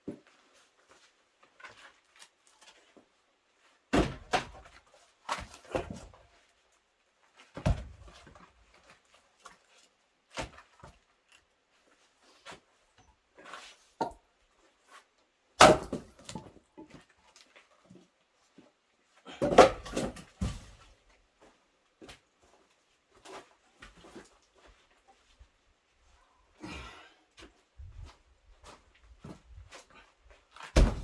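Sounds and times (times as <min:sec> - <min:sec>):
axe chopping firewood: 0:15.6 - 0:16.5, 0:19.4 - 0:20.7, 0:30.7 - 0:31.0.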